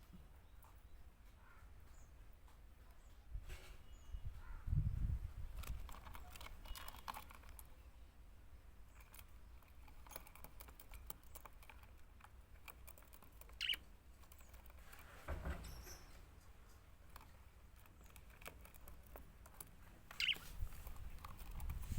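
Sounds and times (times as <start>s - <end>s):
budgerigars clicking and scratching: 5.4s - 21.9s
budgerigar chirp: 13.6s - 13.8s, 20.1s - 20.6s.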